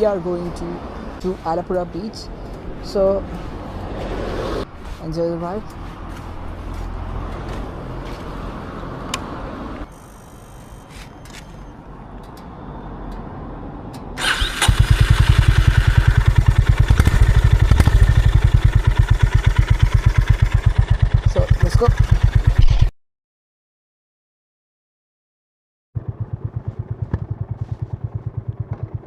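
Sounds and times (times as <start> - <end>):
motorcycle engine cranking: 14.2 - 20.4
motorcycle engine idling: 14.3 - 22.6, 26.0 - 29.0.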